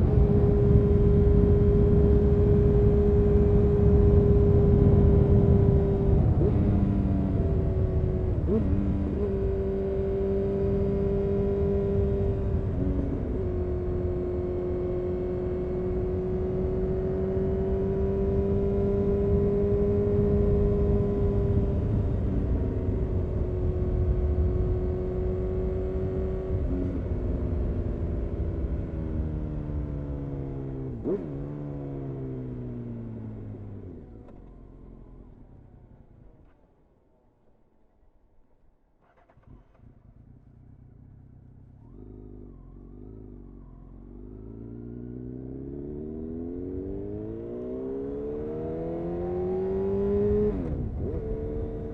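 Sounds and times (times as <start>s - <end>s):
low wind rumble: 0.0s - 9.6s
motorcycle engine revving: 0.0s - 36.6s, 39.0s - 51.9s.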